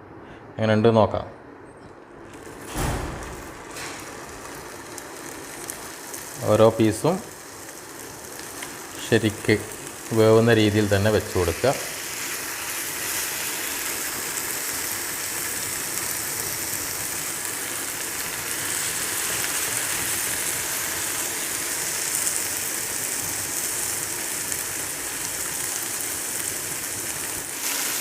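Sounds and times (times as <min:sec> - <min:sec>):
chicken sizzling in frying pan: 0:02.4 - 0:28.0.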